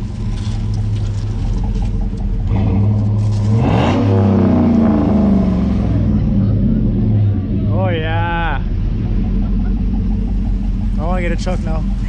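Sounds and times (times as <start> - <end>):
truck engine idling and revving: 0.0 - 12.0.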